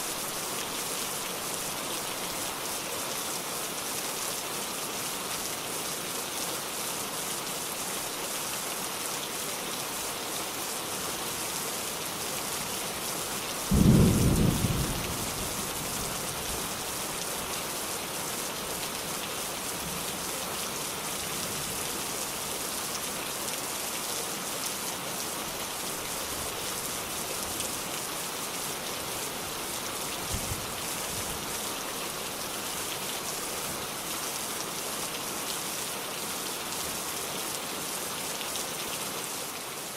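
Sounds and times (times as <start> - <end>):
steady rain hissing: 0.0 - 39.9
thunder rumbling: 13.7 - 16.0.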